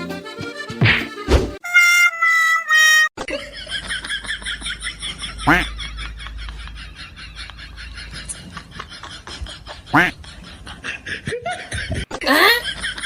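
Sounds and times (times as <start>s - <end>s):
rapid repeated laughter: 3.2s - 13.0s.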